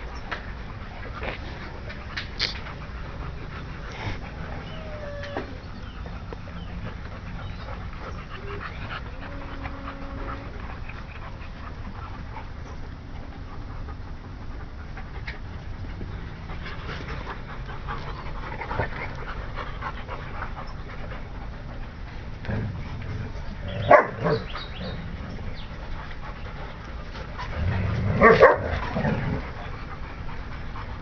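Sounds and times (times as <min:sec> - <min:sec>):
dogs panting: 0:00.0 - 0:31.0
steady low rumble: 0:00.0 - 0:31.0
dog whining: 0:03.9 - 0:06.7, 0:07.4 - 0:10.6.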